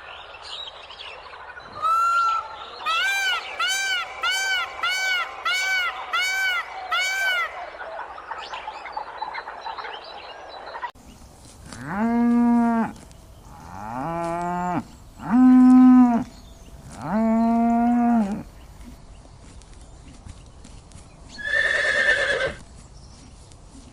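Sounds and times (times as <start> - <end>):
cow mooing: 11.7 - 16.3, 16.9 - 18.5.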